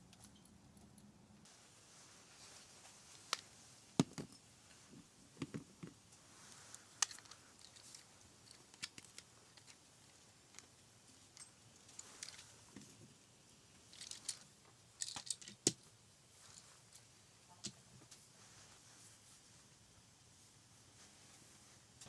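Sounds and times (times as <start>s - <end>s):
faint steady hiss: 0.0s - 22.0s
soft knocks of small objects: 4.0s - 6.0s
sharp clicks of small objects: 15.0s - 15.8s.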